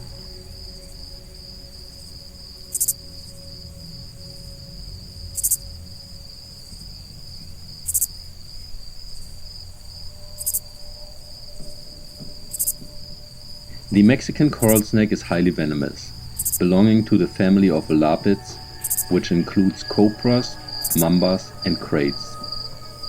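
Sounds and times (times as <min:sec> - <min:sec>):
insects trilling: 0:00.0 - 0:23.0
low rumble: 0:00.0 - 0:23.0
sharp high chirp: 0:16.1 - 0:23.0.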